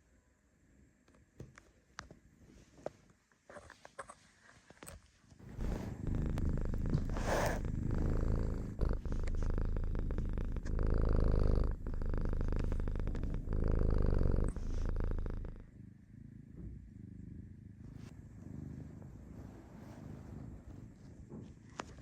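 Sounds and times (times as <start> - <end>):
cat purring: 5.4 - 22.0.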